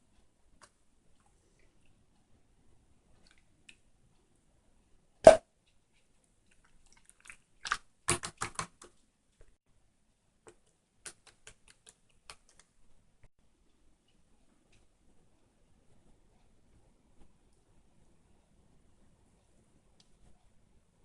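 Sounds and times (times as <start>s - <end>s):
clicks and taps: 7.7s - 9.6s, 10.4s - 12.8s.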